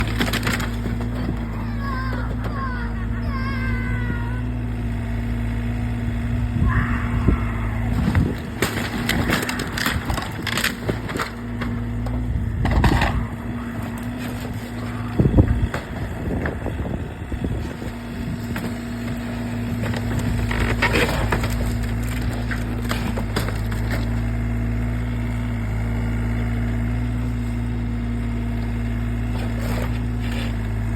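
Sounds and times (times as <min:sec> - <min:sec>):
crunching and cracking: 0:00.0 - 0:02.6, 0:06.7 - 0:25.6
excavator diesel engine running: 0:00.0 - 0:30.9.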